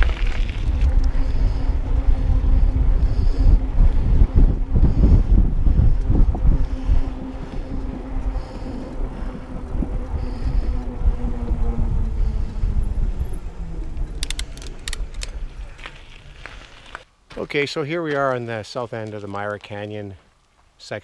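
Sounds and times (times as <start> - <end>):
wind buffeting microphone: 0.0 - 17.0
bike tyres rolling on gravel: 0.0 - 21.0
sharp clicks: 14.0 - 15.4.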